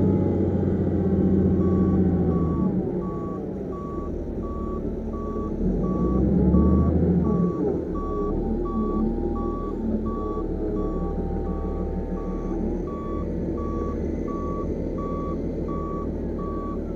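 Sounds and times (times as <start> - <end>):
diesel engine running under load: 0.0 - 16.9
reversing alarm beeping: 0.9 - 16.9.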